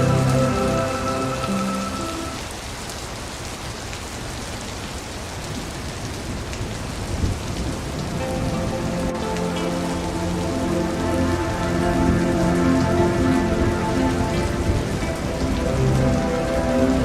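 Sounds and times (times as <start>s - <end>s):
soft sustained tones: 0.0s - 2.4s, 8.2s - 17.0s
rain splashing into puddle: 0.0s - 17.0s.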